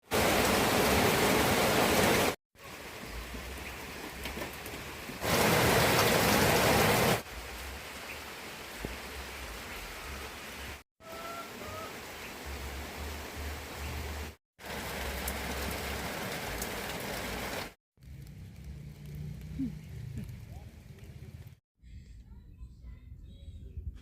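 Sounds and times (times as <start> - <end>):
rain falling: 0.0 - 21.6.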